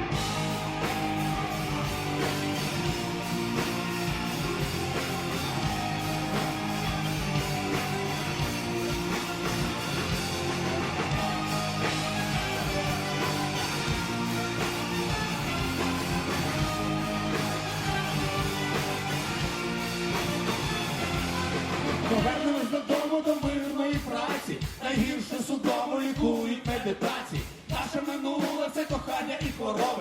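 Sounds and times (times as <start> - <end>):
strummed guitars: 0.0 - 23.6
drum beat: 0.0 - 30.0.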